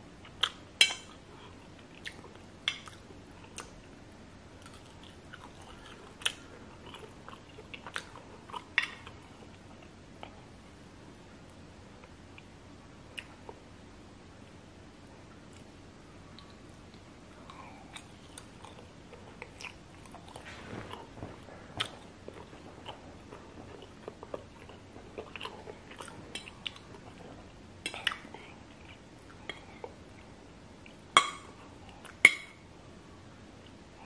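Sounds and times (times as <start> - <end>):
chewing noodles: 16.4 - 31.0.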